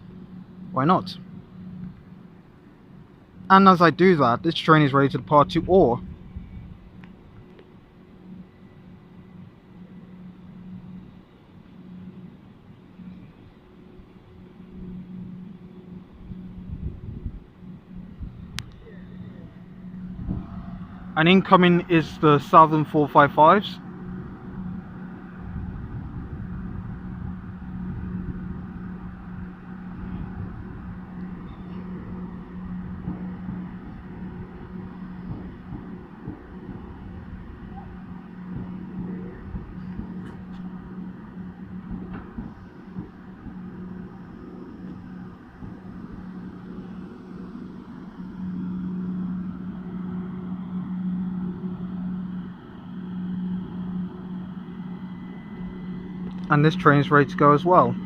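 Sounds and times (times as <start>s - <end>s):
steady low hum: 0.0s - 58.0s
train arriving rumble: 0.0s - 58.0s.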